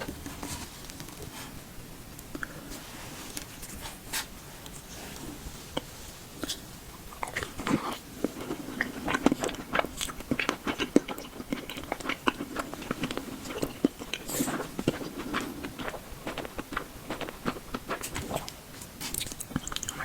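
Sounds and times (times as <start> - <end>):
person chewing boba: 5.7 - 20.0.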